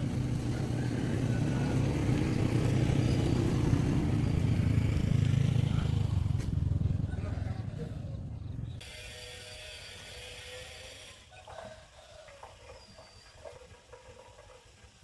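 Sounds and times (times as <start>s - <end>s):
engine low rumble: 0.0s - 8.8s.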